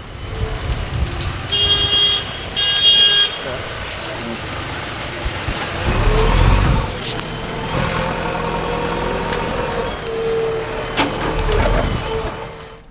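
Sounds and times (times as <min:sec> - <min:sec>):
vehicle engine running: 0:03.8 - 0:11.5.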